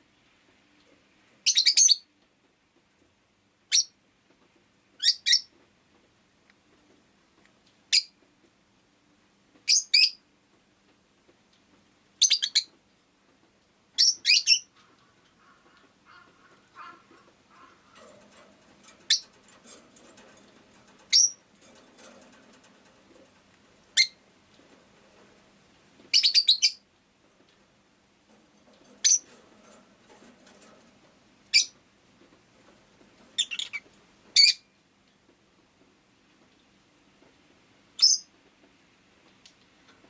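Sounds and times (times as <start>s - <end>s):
faint low background noise: 0.0s - 40.0s
lovebird chirping: 1.4s - 2.1s, 5.0s - 5.5s, 12.2s - 12.7s, 14.0s - 14.7s, 21.1s - 21.4s, 24.0s - 24.2s, 26.1s - 26.8s, 29.0s - 29.2s, 31.5s - 31.7s, 33.4s - 33.8s, 38.0s - 38.3s.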